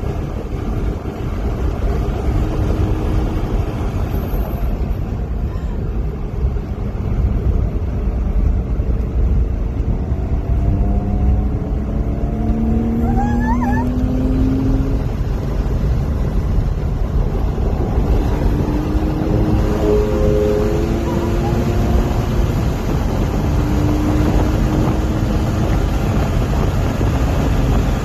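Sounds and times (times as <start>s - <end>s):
low rumble and road noise: 0.0s - 28.0s
race car engine accelerating: 9.8s - 16.4s, 17.4s - 28.0s
high squeal: 12.9s - 13.9s.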